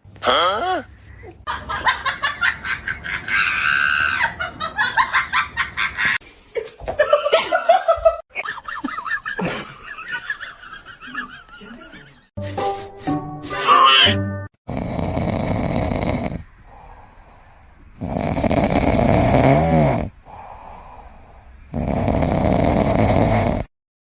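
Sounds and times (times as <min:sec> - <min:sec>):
people laughing: 0:01.5 - 0:13.1.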